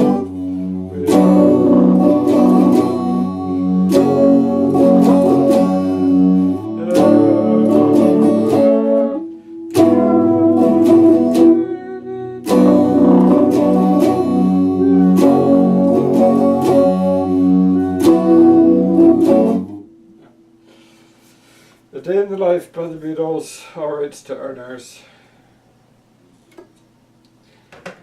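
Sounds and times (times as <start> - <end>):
electric guitar strumming chords: 0.0 - 20.6.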